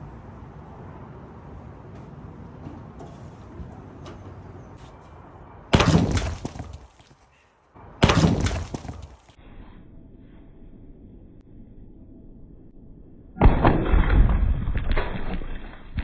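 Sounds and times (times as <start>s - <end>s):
heavy lintel crashing onto ground: 5.7s - 7.2s, 8.0s - 9.3s.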